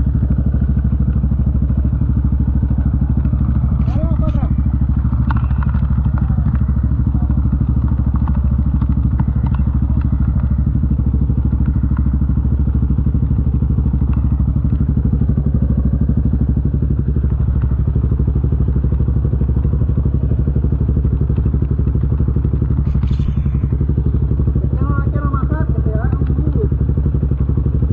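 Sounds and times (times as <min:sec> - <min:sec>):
atv engine running steadily: 0:00.0 - 0:27.9
light knocks and clatter: 0:02.8 - 0:12.4.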